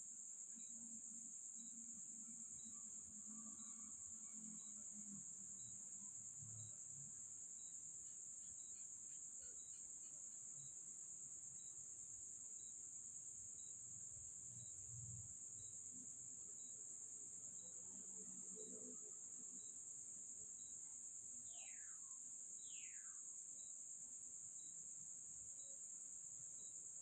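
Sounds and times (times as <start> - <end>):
cricket chirping: 0.0 - 27.0
high-pitched insect drone: 21.4 - 23.7.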